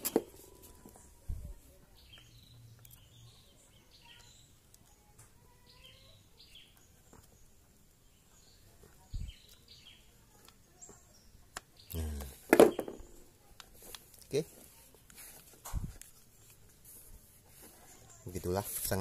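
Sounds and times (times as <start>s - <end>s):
faint bird chirps: 0.4s - 13.5s
dull thump: 12.5s - 13.2s.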